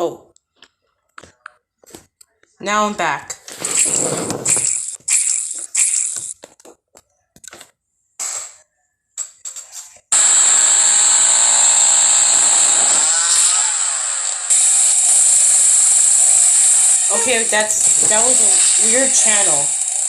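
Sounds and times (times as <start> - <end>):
chainsaw running: 10.2 - 20.0.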